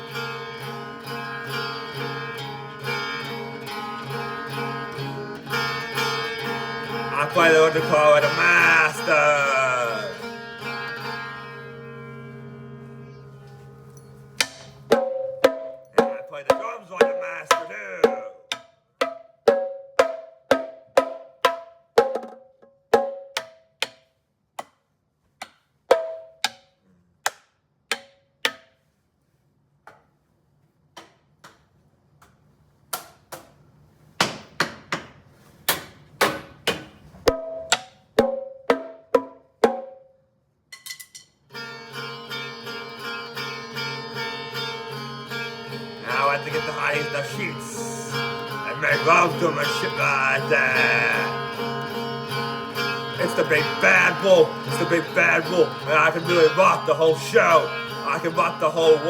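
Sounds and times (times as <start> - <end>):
hand drums in irregular rhythm: 14.4 - 24.1, 25.9 - 26.6, 37.3 - 40.0.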